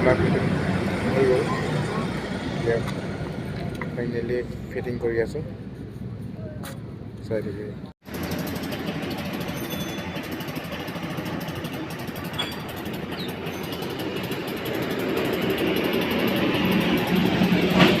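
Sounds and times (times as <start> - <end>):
scooter engine running: 8.0 - 18.0.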